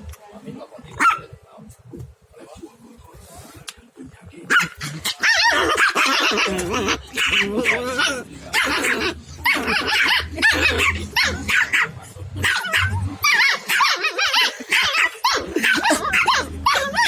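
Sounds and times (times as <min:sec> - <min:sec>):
puppy and small dog yapping: 0:04.5 - 0:17.0.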